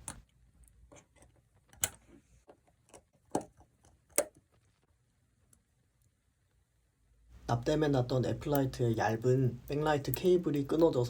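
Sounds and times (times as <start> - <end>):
tools and parts clicking: 0.0 - 4.4.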